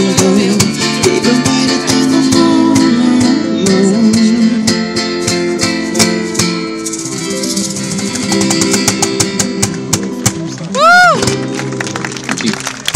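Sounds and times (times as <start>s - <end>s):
acoustic guitar strumming chords: 0.0s - 10.5s
sharp percussive beat: 5.2s - 10.4s.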